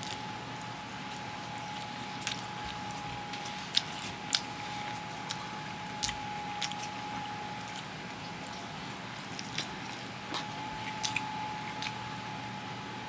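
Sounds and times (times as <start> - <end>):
person chewing food: 0.0 - 12.4
small mouth clicks and smacks: 1.1 - 7.0, 7.6 - 12.1.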